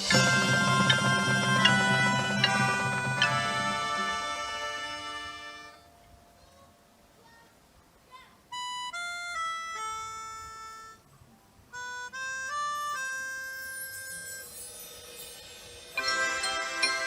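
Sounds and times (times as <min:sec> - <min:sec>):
reedy instrument melody: 0:00.0 - 0:06.4, 0:11.7 - 0:14.5, 0:15.9 - 0:17.0.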